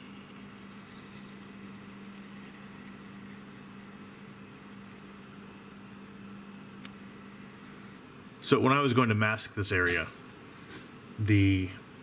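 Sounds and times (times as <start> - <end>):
tape peeling crackles: 0.0 - 5.6
steady low hum: 0.0 - 12.0.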